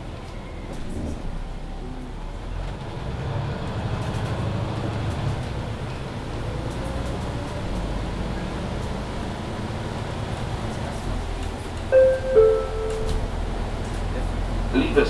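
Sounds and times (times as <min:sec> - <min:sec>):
bus engine low rumble: 0:00.0 - 0:15.0
two-note chime falling in pitch: 0:11.9 - 0:13.5.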